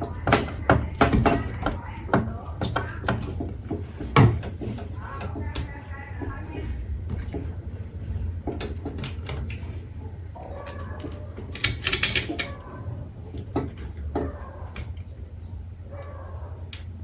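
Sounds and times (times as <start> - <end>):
sharp clicks and knocks: 0.0 - 7.5, 10.6 - 12.6
steady low hum: 0.0 - 17.0.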